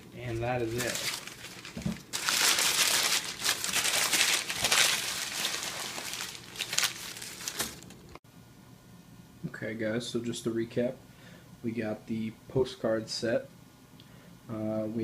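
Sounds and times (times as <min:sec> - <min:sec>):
packaging crinkling: 0:00.0 - 0:08.2.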